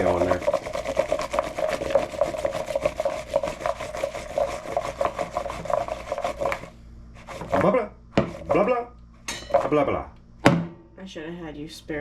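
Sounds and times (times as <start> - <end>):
asparagus rattling in a bowl: 0.0 - 6.5.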